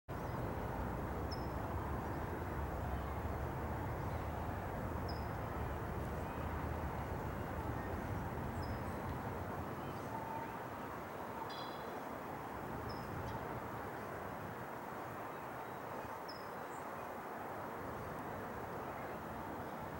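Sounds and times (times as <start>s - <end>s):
low outdoor rumble: 0.1s - 10.9s.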